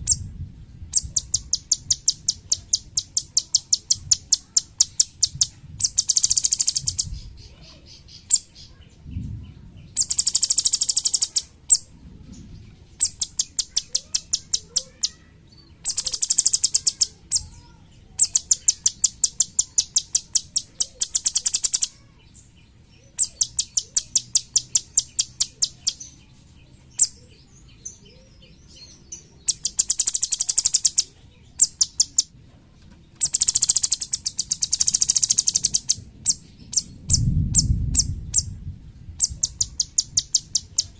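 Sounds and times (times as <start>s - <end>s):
songbird singing trills: 0.0s - 32.4s, 33.1s - 40.9s.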